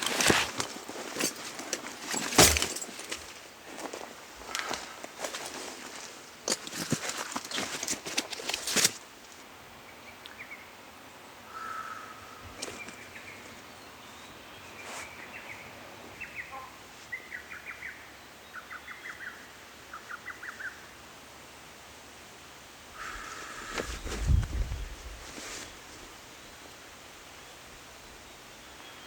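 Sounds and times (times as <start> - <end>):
small birds singing: 4.5 - 8.9, 9.8 - 21.0, 23.0 - 29.0.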